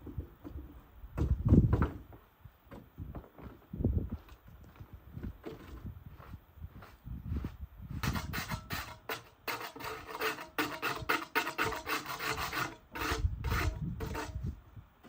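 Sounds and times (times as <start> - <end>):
rhythmic rasping strokes: 8.0 - 14.5.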